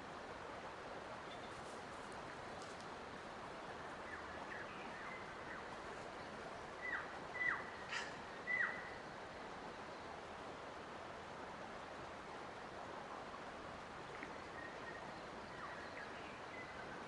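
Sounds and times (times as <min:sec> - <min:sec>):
steady background hiss: 0:00.0 - 0:17.0
bird calls slurring downward: 0:06.8 - 0:09.1.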